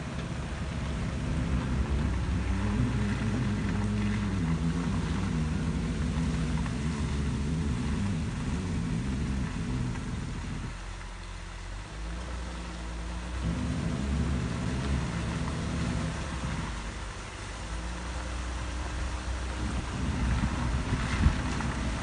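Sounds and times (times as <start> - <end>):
car engine running inside cabin: 0.0 - 22.0.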